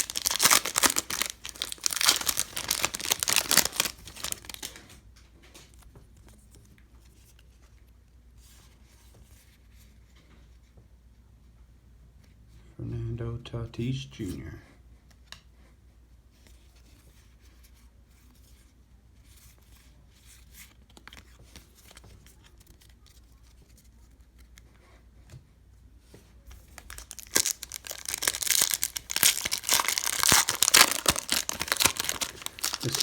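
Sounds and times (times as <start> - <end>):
card pack wrapper ripped open: 0.0 - 4.8, 26.8 - 33.0
handling of cards: 0.0 - 7.8, 26.5 - 33.0.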